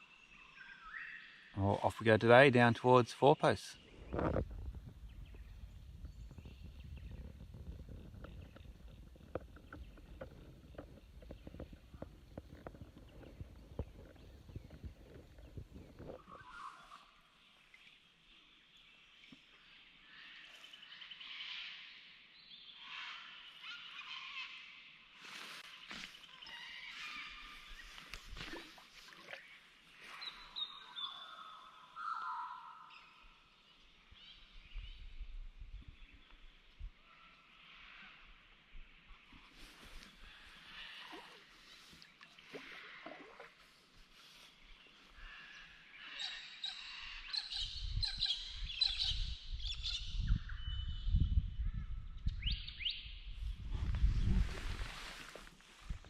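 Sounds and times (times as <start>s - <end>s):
low uneven rumbling: 4.0s - 16.3s.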